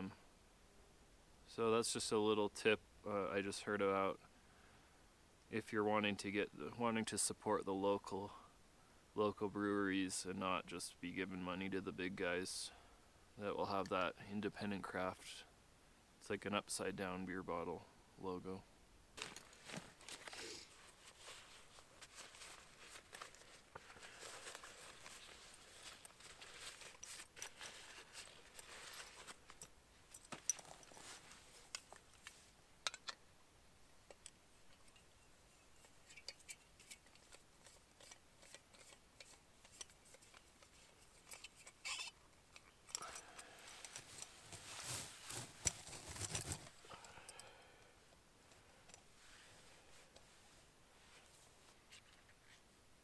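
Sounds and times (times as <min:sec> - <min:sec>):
rustling: 0:19.2 - 0:33.2, 0:34.0 - 0:47.5.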